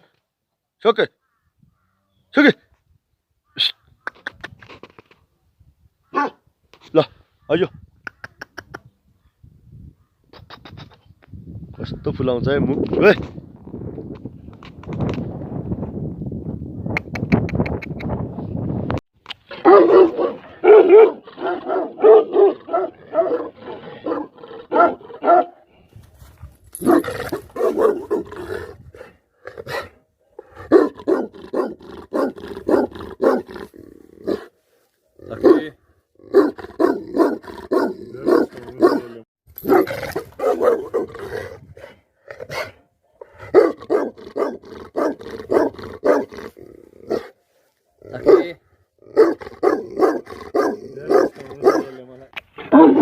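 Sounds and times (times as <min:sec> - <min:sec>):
dog barking deeply: 0:06.1 - 0:06.4, 0:19.5 - 0:25.7, 0:26.8 - 0:34.5, 0:35.2 - 0:41.7, 0:43.4 - 0:47.4, 0:48.1 - 0:53.0.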